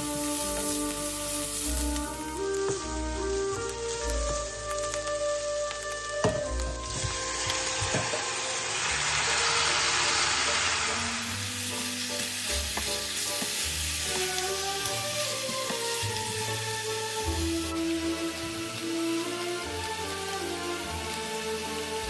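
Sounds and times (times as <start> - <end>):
wooden spatula stirring: 0.0 - 9.4, 11.7 - 17.8
chicken sizzling in a pan: 0.0 - 22.0.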